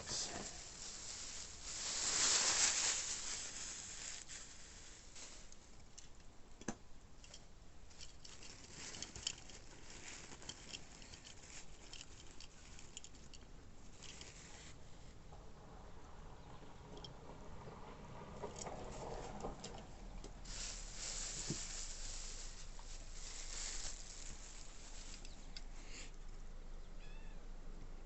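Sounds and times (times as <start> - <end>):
packaging rustling: 0.0 - 5.8, 8.0 - 13.3, 20.4 - 25.6
small clicks and taps of toy cars: 5.9 - 7.4.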